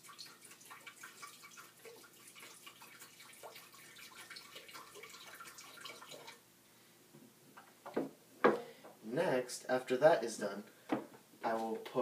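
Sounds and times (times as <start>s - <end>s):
liquid trickling into glass: 0.0s - 6.4s.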